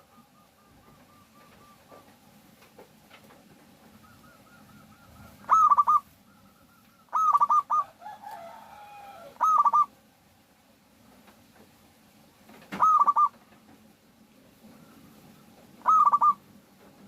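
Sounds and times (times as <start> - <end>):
dove cooing: 0.0 - 2.2, 3.7 - 10.0, 12.7 - 13.5, 14.6 - 16.6
faint bird calls: 0.0 - 2.3, 3.8 - 10.0, 12.6 - 13.6, 14.5 - 16.6.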